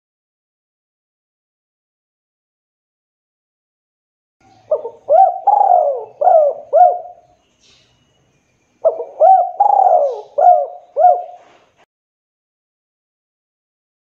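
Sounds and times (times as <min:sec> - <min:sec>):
dove cooing: 0:04.5 - 0:07.3, 0:08.8 - 0:11.7.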